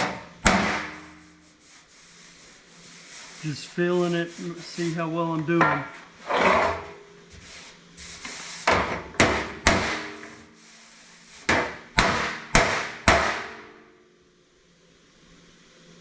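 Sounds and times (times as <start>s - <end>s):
hammer striking steel panel: 0.0s - 1.3s, 9.2s - 10.4s, 11.5s - 13.9s.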